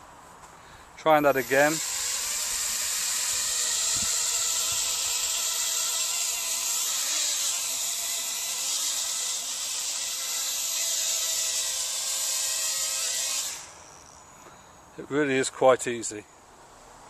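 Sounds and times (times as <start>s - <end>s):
quadcopter propellers buzzing: 1.1s - 14.4s.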